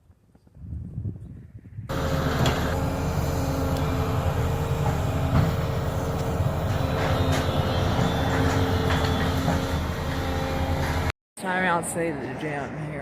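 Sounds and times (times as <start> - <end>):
engine drone: 1.9 - 11.1
low hum: 1.9 - 11.1.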